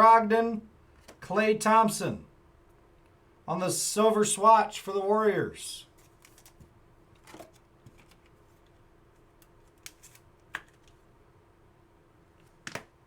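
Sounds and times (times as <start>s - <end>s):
faint steady hum: 0.0s - 13.0s
card wrappers rustling: 6.0s - 11.0s.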